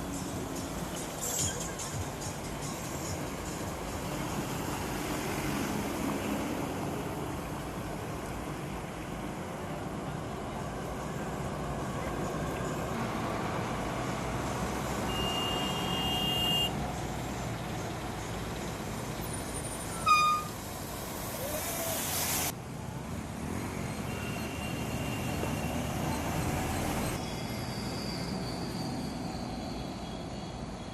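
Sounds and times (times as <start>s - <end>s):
car horn toot: 15.1s - 16.7s, 19.9s - 20.6s
tyres hissing on wet road: 18.3s - 22.6s.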